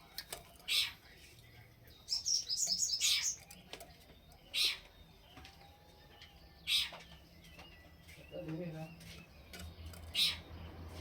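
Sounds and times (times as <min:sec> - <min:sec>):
songbird chirping: 0:00.0 - 0:11.0.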